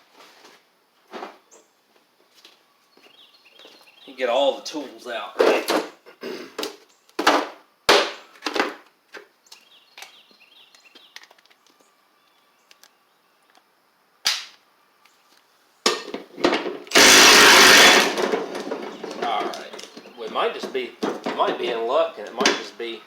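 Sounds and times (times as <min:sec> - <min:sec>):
power tool burst: 0:16.9 - 0:19.0.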